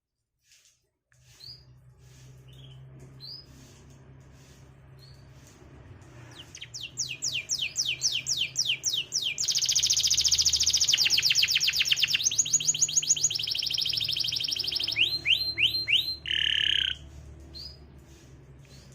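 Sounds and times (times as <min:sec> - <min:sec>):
canary singing: 0:06.3 - 0:17.8.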